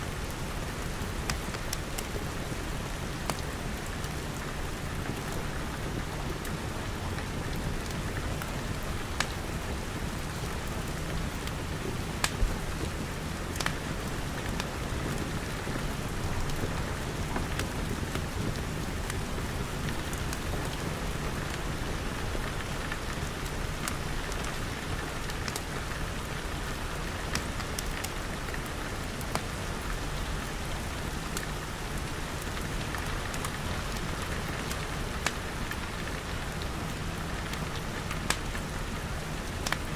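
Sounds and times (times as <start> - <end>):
rain pattering on glass: 0.1 - 39.9
wood fire crackling: 0.1 - 39.9.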